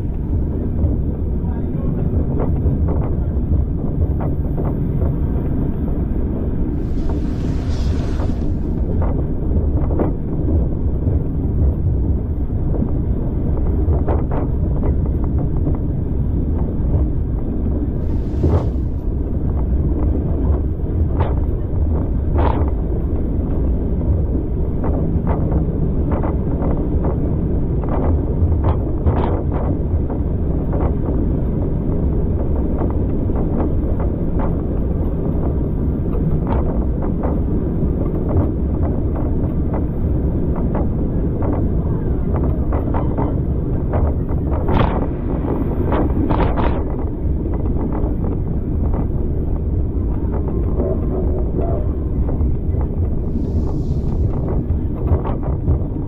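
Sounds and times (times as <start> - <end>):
train carriage rumbling: 0.0 - 56.0
brief hiss: 6.8 - 9.0.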